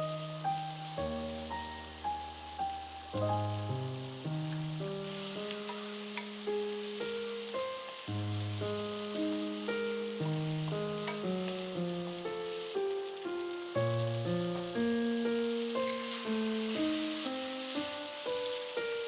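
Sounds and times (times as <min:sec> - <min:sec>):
background music melody: 0:00.0 - 0:19.0
food sizzling in a pan: 0:00.0 - 0:19.0.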